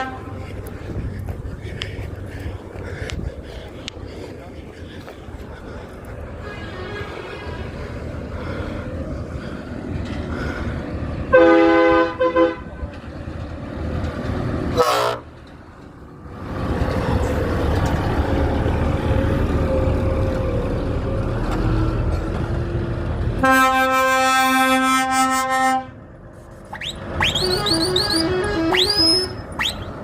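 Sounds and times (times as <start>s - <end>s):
truck horn long note: 0.0s - 0.5s, 6.4s - 7.7s, 11.3s - 12.8s, 14.7s - 15.3s, 23.4s - 26.0s, 27.4s - 29.5s
truck rumbling past: 0.0s - 30.0s.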